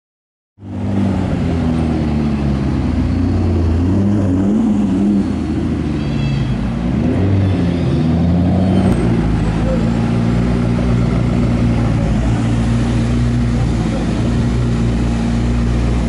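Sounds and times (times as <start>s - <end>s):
high squeak: 5.2s - 6.7s
car engine running at low revs: 9.0s - 16.0s.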